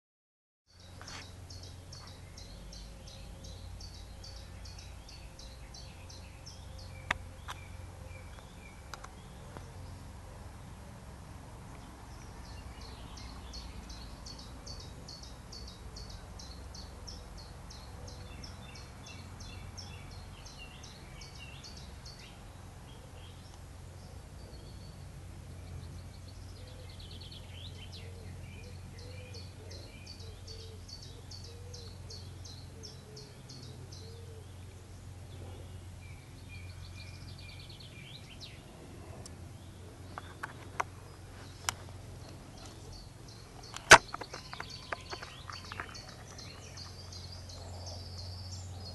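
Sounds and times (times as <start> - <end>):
birds chirping softly: 0.7 - 48.9
steady low rumble: 34.5 - 48.9.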